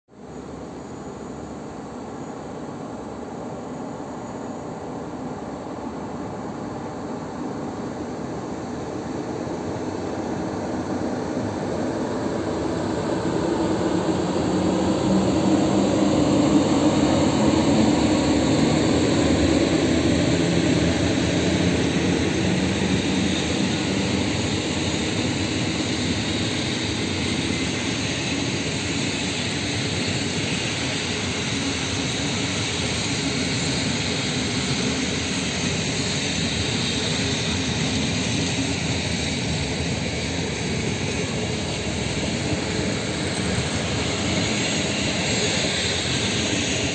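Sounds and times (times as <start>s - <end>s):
train wheels rolling on track: 0.3s - 46.9s.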